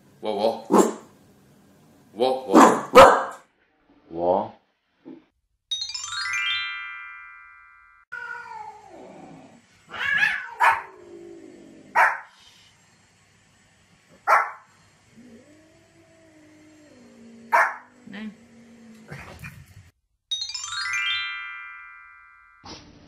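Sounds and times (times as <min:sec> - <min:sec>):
dog barking sharply: 0:00.7 - 0:01.1, 0:02.5 - 0:03.4, 0:14.3 - 0:14.6
cat meowing: 0:08.1 - 0:09.0, 0:09.9 - 0:11.0.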